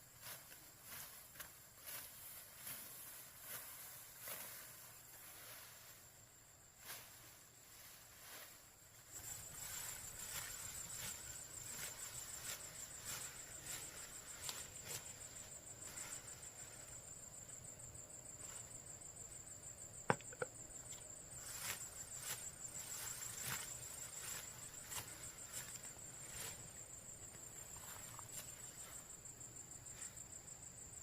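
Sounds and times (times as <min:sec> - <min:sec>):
soft brushing strokes: 0:00.0 - 0:19.7, 0:20.7 - 0:30.8.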